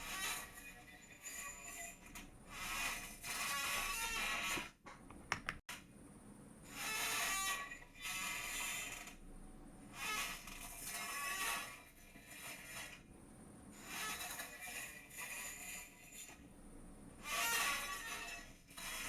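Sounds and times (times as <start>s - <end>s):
chair creaking: 2.0s - 5.6s.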